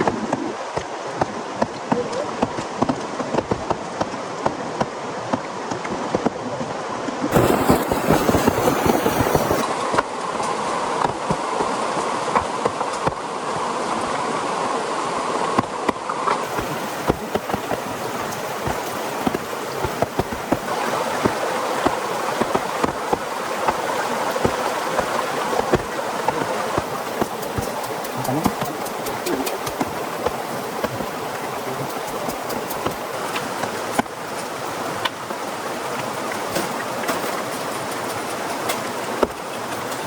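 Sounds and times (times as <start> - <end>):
steady rain: 7.3 - 15.5, 16.4 - 40.0
drops ticking: 16.4 - 35.2.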